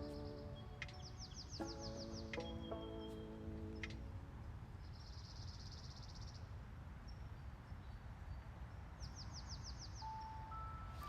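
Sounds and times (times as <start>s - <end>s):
high falling bird chirps: 0.0s - 4.0s
low background noise: 0.0s - 11.0s.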